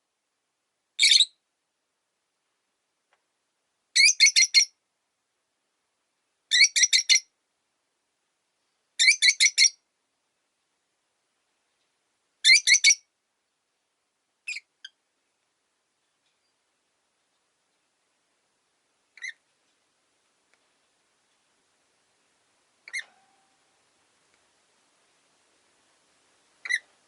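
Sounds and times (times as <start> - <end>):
lovebird shrill chirps: 1.0 - 1.4, 4.0 - 4.7, 6.5 - 7.3, 9.0 - 9.8, 12.4 - 13.0, 19.2 - 19.4, 22.8 - 23.6, 26.6 - 26.9.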